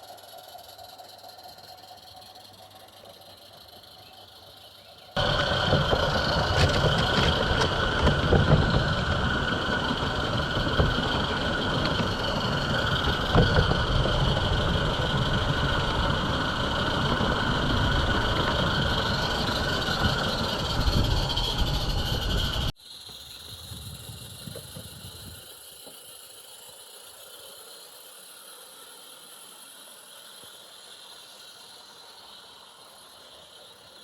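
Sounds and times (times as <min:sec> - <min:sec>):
high-pitched whine: 0:00.0 - 0:25.8
model train wheels rumbling: 0:00.0 - 0:34.0.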